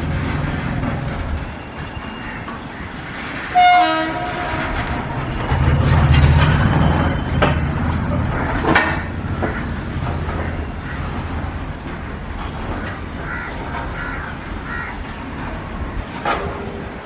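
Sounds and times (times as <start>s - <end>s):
passing train rumble: 0.0s - 17.0s
train wheels clanking: 0.0s - 17.0s
electric train horn blast: 3.5s - 5.1s.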